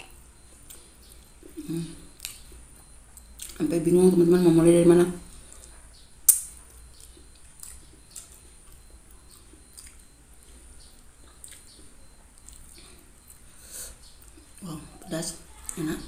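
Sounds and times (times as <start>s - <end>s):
wet mouth clicks and smacks: 2.2s - 2.6s, 3.2s - 3.6s, 5.5s - 10.1s
close chewing: 5.4s - 14.7s.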